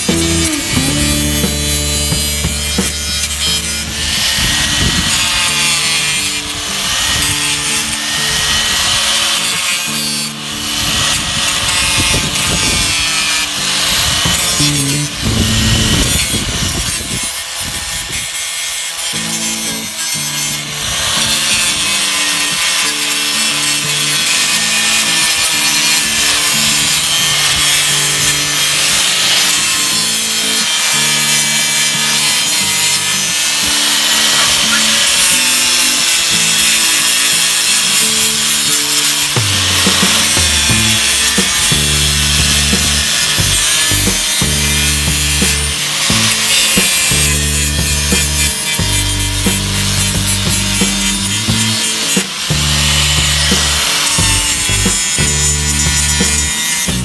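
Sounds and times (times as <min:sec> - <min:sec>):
background music with bass: 0:00.0 - 0:09.2, 0:10.0 - 0:17.2, 0:39.1 - 0:57.0
abrasive rubbing on metal: 0:00.0 - 0:57.0.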